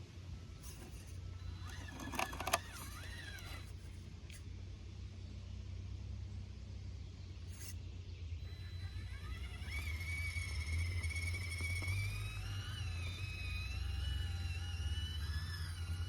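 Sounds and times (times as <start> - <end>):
electric motor whining: 0.6 - 3.8, 8.4 - 16.0.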